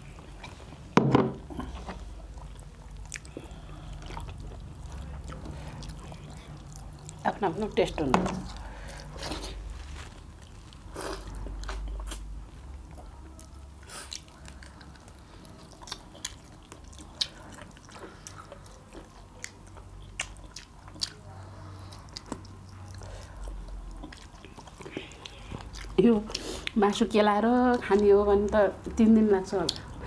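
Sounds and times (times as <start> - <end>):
person chewing food: 0.0 - 7.3, 8.3 - 26.8.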